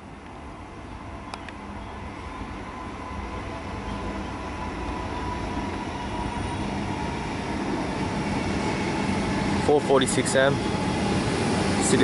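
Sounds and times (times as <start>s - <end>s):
electric train approaching: 0.0s - 12.0s.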